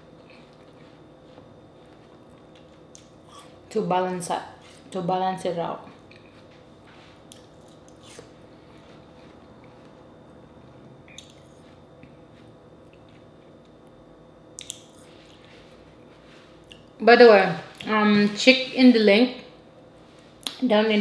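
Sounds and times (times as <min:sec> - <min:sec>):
person chewing watermelon: 0:00.1 - 0:03.6, 0:05.8 - 0:10.1, 0:11.0 - 0:13.8, 0:14.6 - 0:17.0
mouth smacks: 0:14.6 - 0:15.1.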